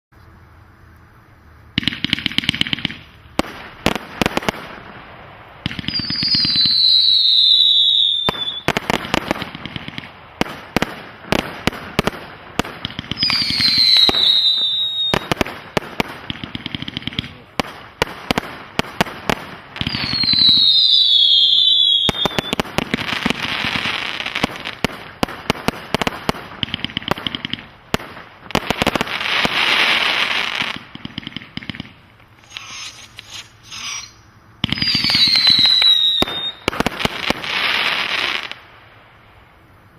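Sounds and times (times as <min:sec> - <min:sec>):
firework bangs and crackling: 0:01.7 - 0:39.9
firework whistles falling in pitch: 0:05.8 - 0:09.2, 0:13.1 - 0:15.4, 0:19.8 - 0:24.2, 0:32.4 - 0:36.8.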